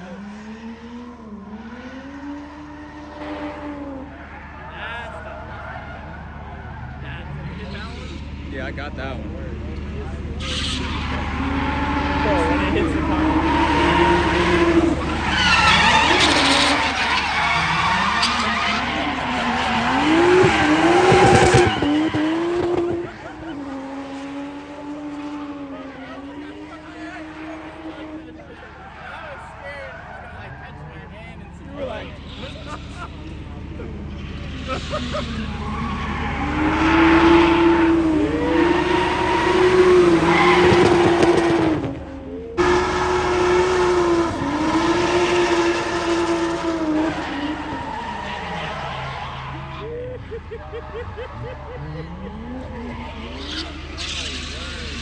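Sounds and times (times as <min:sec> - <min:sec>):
car engine revving: 0:00.0 - 0:55.0
tyres screeching: 0:10.4 - 0:30.7, 0:34.2 - 0:49.9.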